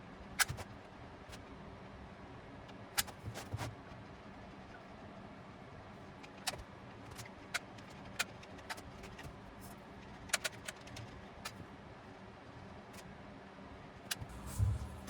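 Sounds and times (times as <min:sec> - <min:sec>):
low hum: 0:14.2 - 0:15.0.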